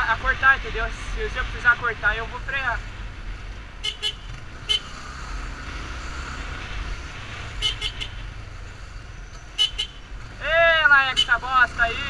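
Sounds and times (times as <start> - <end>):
low rumble of traffic: 0.0 - 12.0
vehicle horn toots: 3.8 - 5.0, 7.6 - 8.2, 9.6 - 10.0.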